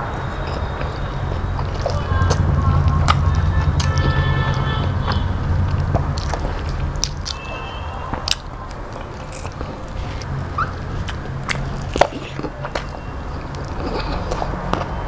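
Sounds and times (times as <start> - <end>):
person chewing with wet smacks: 5.1 - 15.0.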